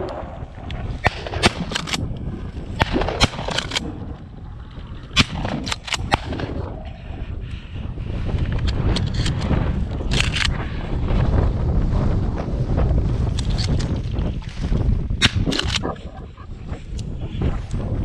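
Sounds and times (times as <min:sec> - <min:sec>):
shotgun shots: 0:01.0 - 0:02.0, 0:02.8 - 0:03.9, 0:05.2 - 0:06.6, 0:15.2 - 0:15.9.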